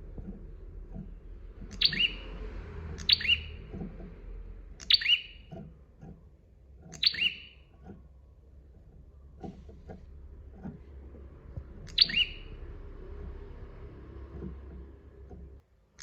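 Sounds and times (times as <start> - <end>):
faint low rumble: 0.0 - 15.6
songbird sharp falling calls: 1.7 - 2.2, 3.0 - 3.6, 4.8 - 5.4, 7.0 - 7.6, 11.9 - 12.6.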